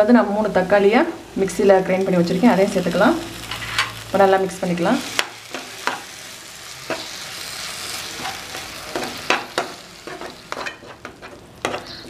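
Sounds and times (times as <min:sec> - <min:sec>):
paste sizzling in hot oil: 0:00.4 - 0:12.0
metal spoon scraping a pan: 0:03.4 - 0:04.0, 0:06.9 - 0:12.0.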